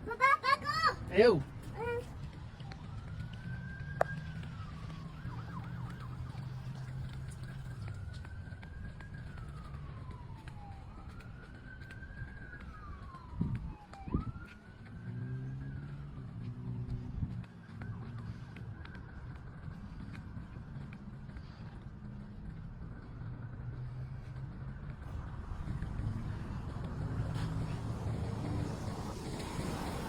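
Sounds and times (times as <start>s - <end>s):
emergency siren wailing: 0.0s - 30.0s
low engine hum: 12.0s - 30.0s.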